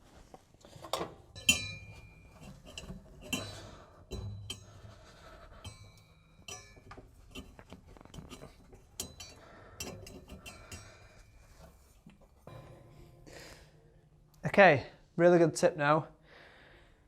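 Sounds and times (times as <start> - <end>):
metallic clinks and taps: 0.8 - 13.2.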